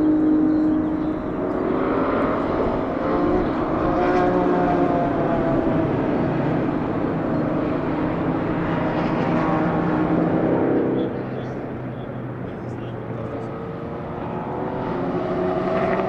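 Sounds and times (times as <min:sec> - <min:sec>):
racing car engines: 0:00.0 - 0:16.0.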